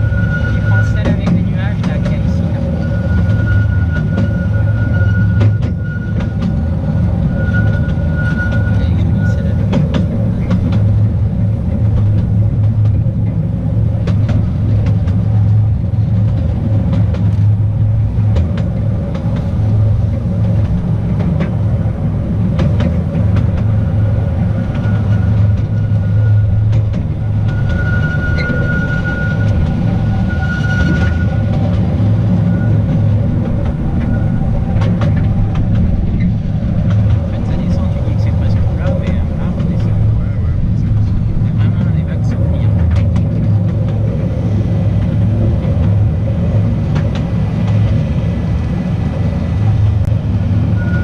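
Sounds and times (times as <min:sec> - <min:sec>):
high wheel squeal: 0:00.0 - 0:11.3, 0:23.0 - 0:51.0
train wheels rumbling on rails: 0:00.0 - 0:51.0
clicks over rail joints: 0:34.7 - 0:44.2.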